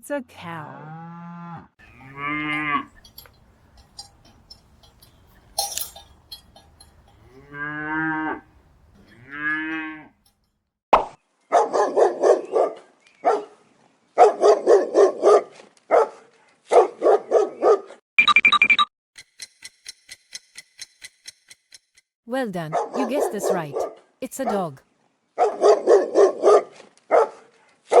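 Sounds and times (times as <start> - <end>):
cow mooing: 0.6 - 3.0, 7.2 - 8.5
dog barking: 11.5 - 13.5, 14.2 - 18.0, 22.7 - 23.9, 25.4 - 28.0.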